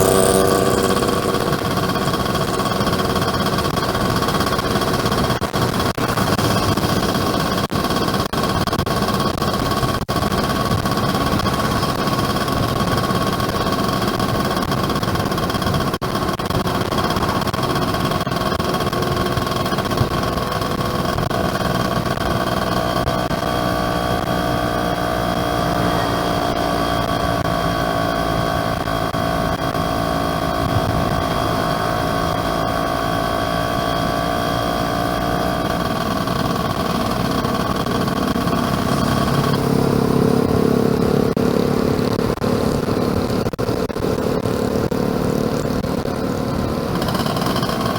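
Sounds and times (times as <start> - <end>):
motorcycle engine running: 0.0 - 47.9
wind noise: 23.9 - 32.8.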